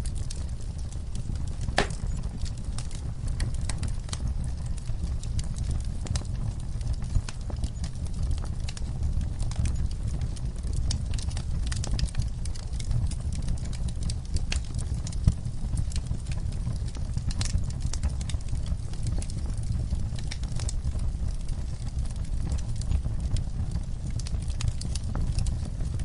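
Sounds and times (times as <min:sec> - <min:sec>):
fire crackles and snaps: 0:00.0 - 0:26.0
flames rumbling: 0:00.0 - 0:26.0
loud fire pop: 0:01.8 - 0:02.2.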